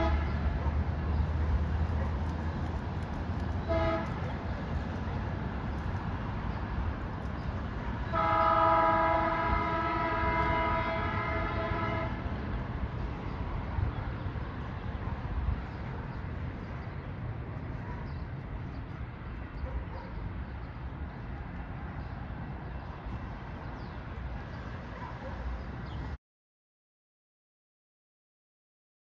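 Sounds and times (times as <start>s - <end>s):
train horn blast: 0.0s - 0.6s, 3.6s - 4.4s, 8.0s - 12.4s
low rumble of train: 0.0s - 26.2s.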